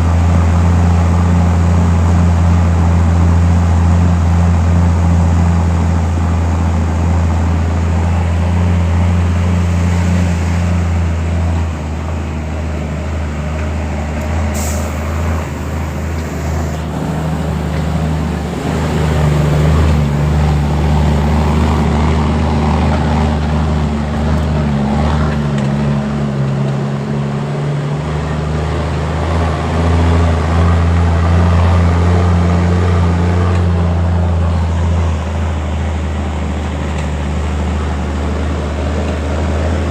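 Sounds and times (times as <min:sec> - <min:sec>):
heavy diesel engine humming: 0:00.0 - 0:39.9
sharp hiss: 0:14.5 - 0:17.8.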